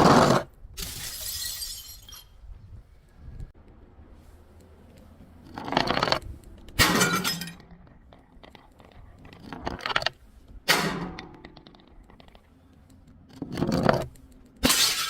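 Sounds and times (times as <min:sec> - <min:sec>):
glass bottles breaking: 0:00.8 - 0:02.3, 0:06.8 - 0:07.6, 0:14.6 - 0:15.0
glass shards tinkling: 0:00.9 - 0:02.4.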